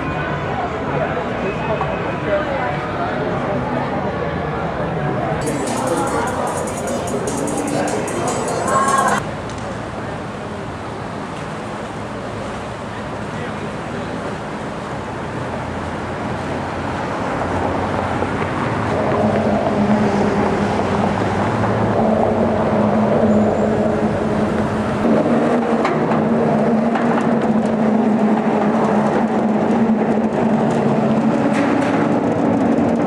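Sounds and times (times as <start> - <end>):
boat engine passing: 5.4 - 26.6.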